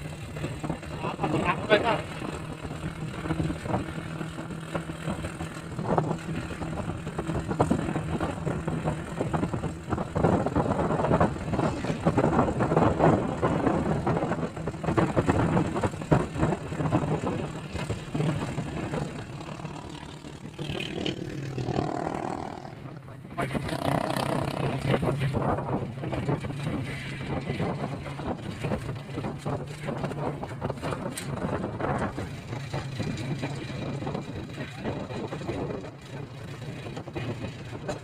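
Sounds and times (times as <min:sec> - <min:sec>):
road noise: 0:00.0 - 0:38.0
vehicle engine humming: 0:00.0 - 0:38.0.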